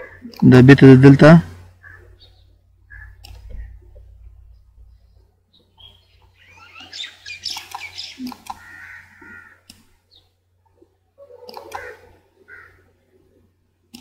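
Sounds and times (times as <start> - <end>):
birds chirping: 0.0 - 14.0
sharp clicks: 3.2 - 3.6, 7.4 - 8.6, 9.6 - 9.9.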